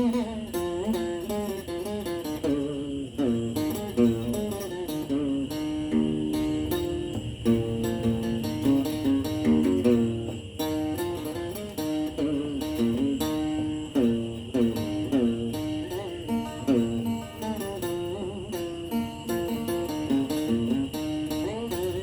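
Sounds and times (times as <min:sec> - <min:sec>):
faint high whine: 0:00.0 - 0:22.0
guitar melody: 0:00.0 - 0:22.0.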